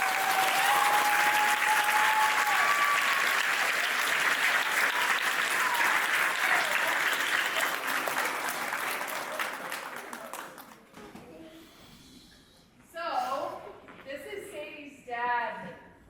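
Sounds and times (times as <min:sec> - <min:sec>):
high held cheer: 0:00.0 - 0:10.7
audience applauding: 0:00.0 - 0:10.9.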